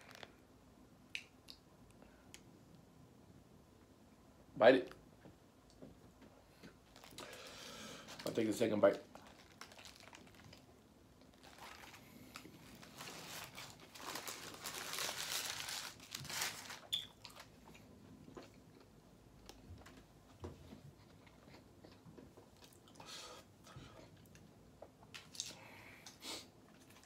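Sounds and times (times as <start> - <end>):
paper wrapper crinkling: 0.0 - 0.4, 6.9 - 17.5
person chewing food: 20.9 - 27.0.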